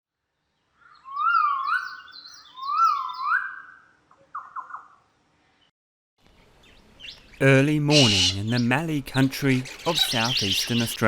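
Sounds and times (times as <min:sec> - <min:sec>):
bird whistling song: 0:00.8 - 0:05.0, 0:09.6 - 0:11.0.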